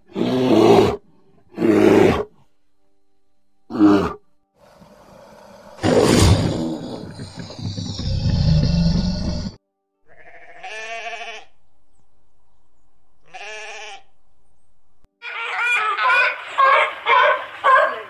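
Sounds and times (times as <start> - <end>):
ram bleating: 10.0 - 11.6, 13.2 - 14.1
sea lion barking: 15.2 - 18.0.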